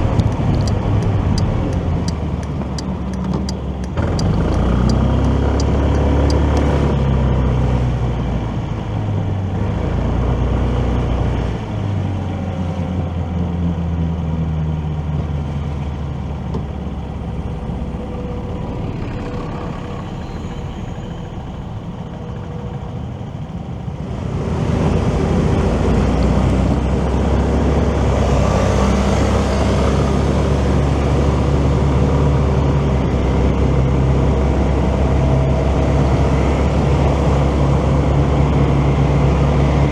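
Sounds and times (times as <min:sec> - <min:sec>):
wide rushing noise: 0:00.0 - 0:04.2
motorcycle engine accelerating: 0:00.0 - 0:12.2, 0:15.7 - 0:39.9
wind and road noise: 0:00.0 - 0:39.9.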